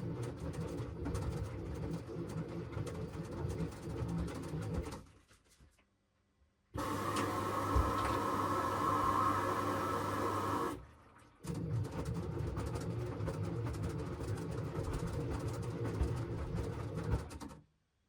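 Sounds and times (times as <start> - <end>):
washing machine motor hum: 6.8 - 16.6
washing machine rumbling churn: 6.8 - 17.3.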